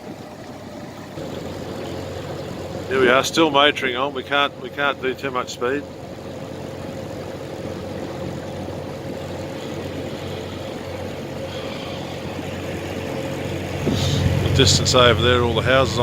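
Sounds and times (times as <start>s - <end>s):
outboard motors humming: 0.0s - 16.0s.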